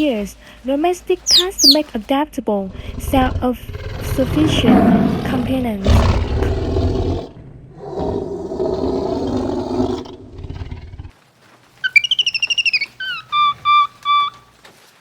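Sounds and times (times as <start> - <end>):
bird trilling and chirping: 1.3 - 1.8, 11.8 - 14.5
deep animal roar: 2.7 - 11.1.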